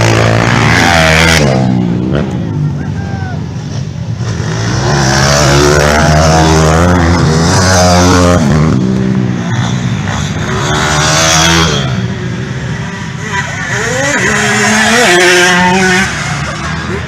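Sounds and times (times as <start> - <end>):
small motorbike engines revving: 0.0 - 2.9, 3.7 - 17.0.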